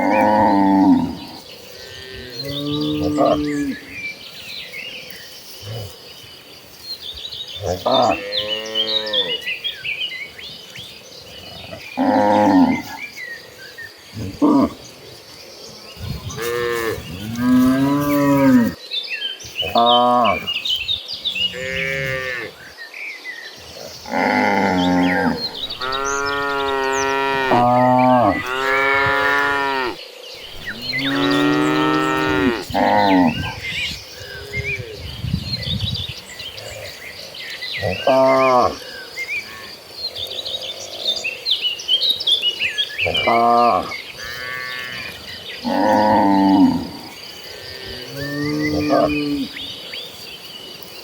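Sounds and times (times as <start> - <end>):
birds chirping: 0.0 - 51.0
cattle mooing: 24.0 - 33.6.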